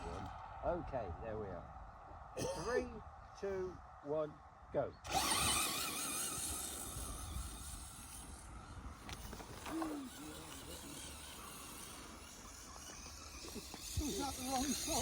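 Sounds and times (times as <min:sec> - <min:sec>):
rc car motor whining: 0:05.0 - 0:15.0.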